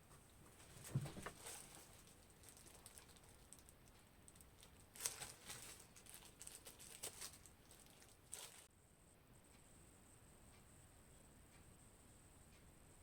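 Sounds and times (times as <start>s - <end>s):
gloved hands knocking and rustling: 0.1s - 2.0s.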